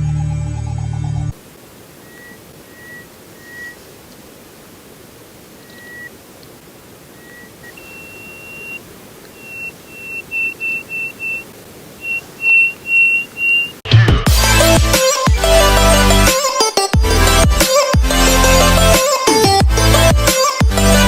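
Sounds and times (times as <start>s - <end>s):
background hiss: 1.4s - 13.8s
bird whistling call: 1.9s - 3.9s, 5.5s - 6.2s, 7.0s - 13.8s.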